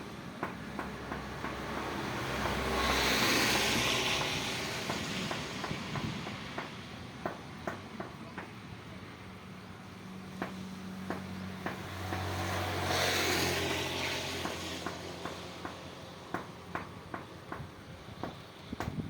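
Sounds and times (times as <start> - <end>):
vehicle passing on wet road: 0.0 - 7.1, 9.1 - 17.1
rain hiss: 1.6 - 6.5.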